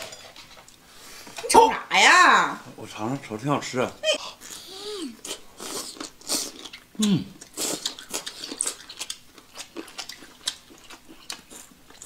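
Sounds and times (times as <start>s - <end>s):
chewing and biting: 5.2s - 12.0s
person humming mm: 7.0s - 7.4s.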